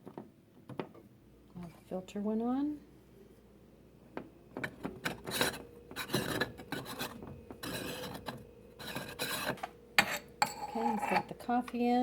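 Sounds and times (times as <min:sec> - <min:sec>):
metal percolator parts scraping: 0:04.6 - 0:11.5.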